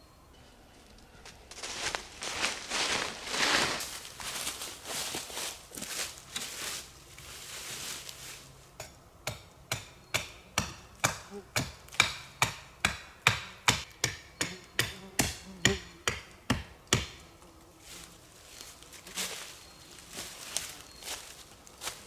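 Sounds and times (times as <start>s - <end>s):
rustling: 0.8s - 8.7s, 17.3s - 22.0s
hand tool striking: 8.8s - 17.2s.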